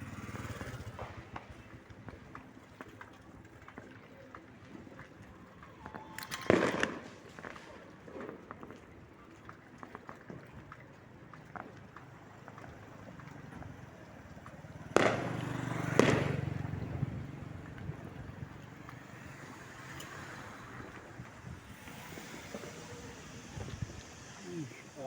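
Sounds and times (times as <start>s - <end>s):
fireworks bursts: 0.0s - 2.9s, 5.8s - 9.0s, 14.2s - 25.0s
rumbling echo: 15.0s - 18.6s.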